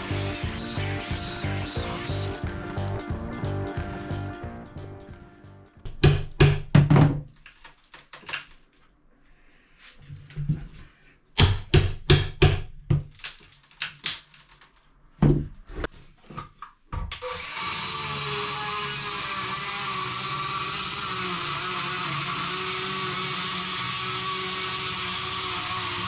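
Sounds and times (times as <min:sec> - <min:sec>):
power tool running: 0:00.0 - 0:04.1, 0:17.2 - 0:26.0
hammer blows: 0:00.0 - 0:06.8.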